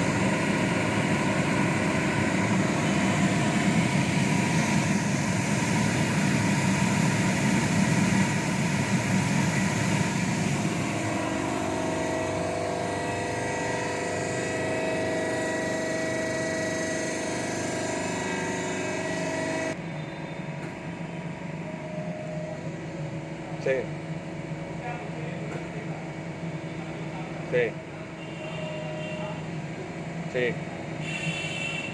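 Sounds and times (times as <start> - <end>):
lathe machine whine: 0.0 - 20.5.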